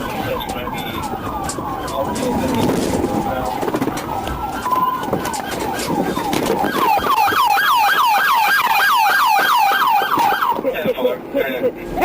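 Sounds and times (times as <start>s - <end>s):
police siren yelping: 0.0s - 10.6s
road noise: 0.0s - 12.0s.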